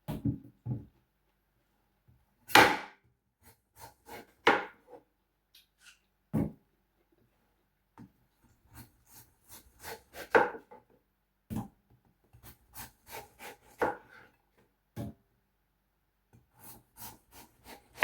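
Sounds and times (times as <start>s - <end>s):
knife cutting watermelon: 8.7s - 10.7s, 12.3s - 14.3s, 16.5s - 18.0s.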